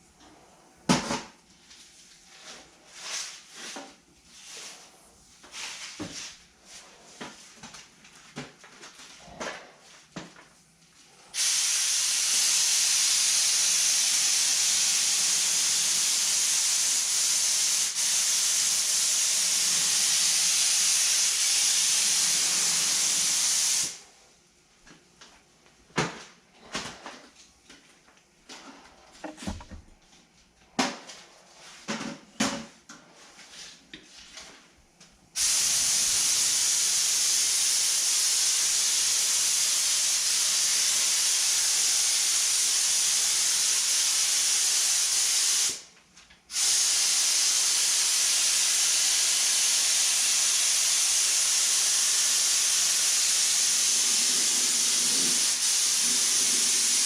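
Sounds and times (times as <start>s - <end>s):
pressurised spray hiss: 11.1s - 24.0s, 35.4s - 45.8s, 46.5s - 57.0s
light knocks and clicks: 29.2s - 29.9s.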